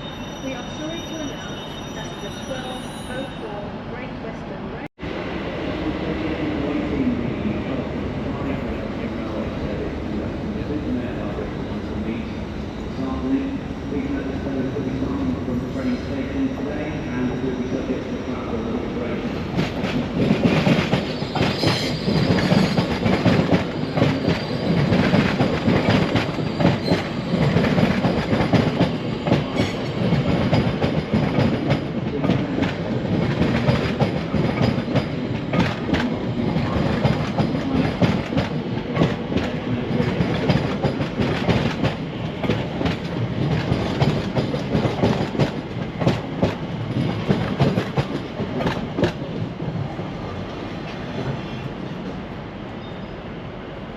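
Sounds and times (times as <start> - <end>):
train wheels clattering on track: 19.5 - 51.4.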